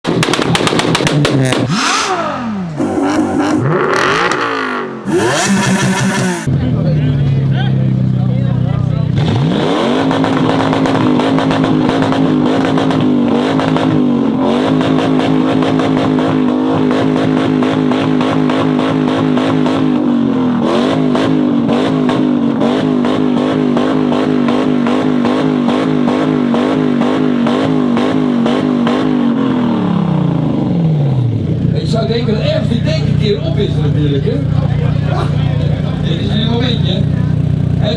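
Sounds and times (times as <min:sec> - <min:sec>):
exhaust crackling pops: 0:00.1 - 0:04.5, 0:10.1 - 0:14.0
car engine on rev limiter: 0:00.1 - 0:08.1.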